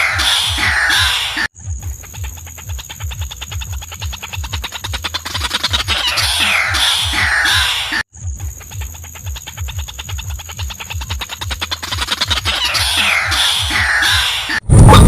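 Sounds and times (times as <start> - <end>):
higher falling bird calls: 0.0 - 1.5, 3.0 - 8.0, 10.6 - 14.6.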